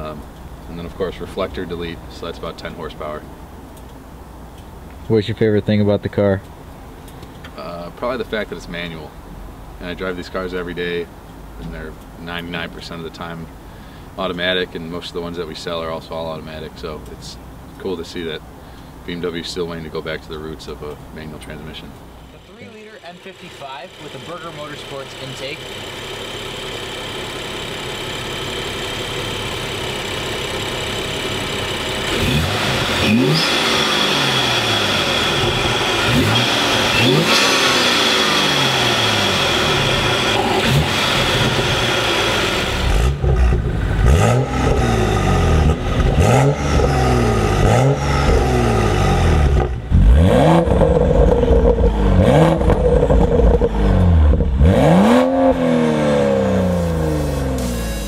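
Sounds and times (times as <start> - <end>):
car engine revving: 22.2 - 58.0
induction whine: 22.2 - 58.0
deep exhaust note: 22.3 - 58.0.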